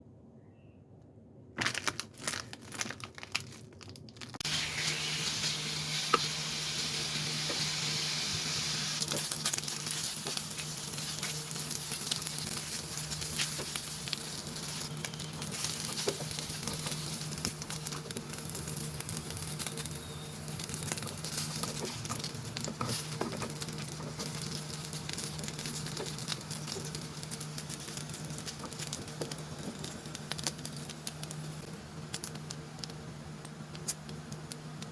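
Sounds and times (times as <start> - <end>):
sausages sizzling in oil: 4.4 - 34.9.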